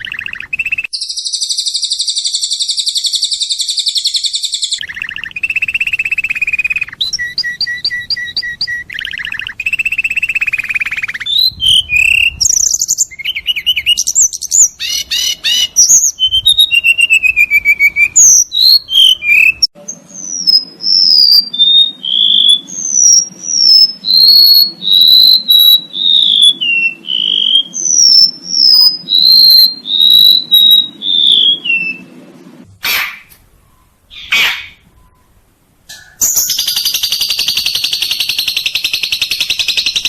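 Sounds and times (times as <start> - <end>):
songbird trills and whistles: 0.0 - 32.2, 32.9 - 40.0
low steady hum: 25.8 - 36.4.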